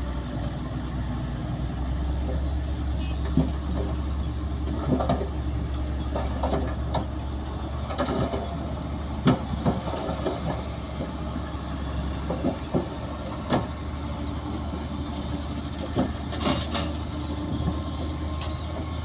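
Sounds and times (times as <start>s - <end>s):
bulldozer diesel engine running: 0.0s - 19.0s
metallic clanks and knocks: 4.7s - 7.2s, 15.8s - 18.6s.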